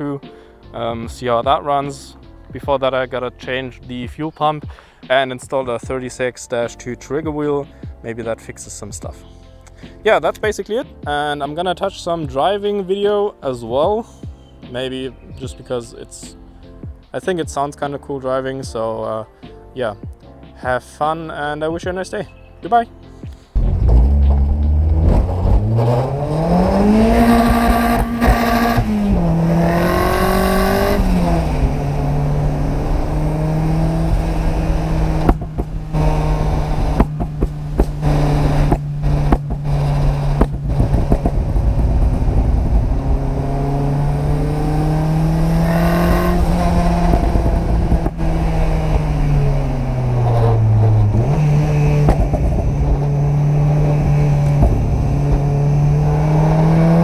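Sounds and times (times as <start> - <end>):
car engine driving: 23.6 - 57.0.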